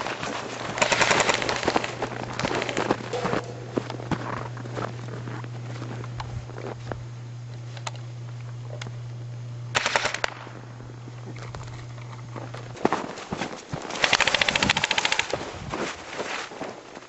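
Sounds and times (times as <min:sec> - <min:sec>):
airsoft guns firing: 0:00.0 - 0:03.6, 0:09.7 - 0:10.8, 0:13.9 - 0:15.4
steady low hum: 0:00.0 - 0:16.1.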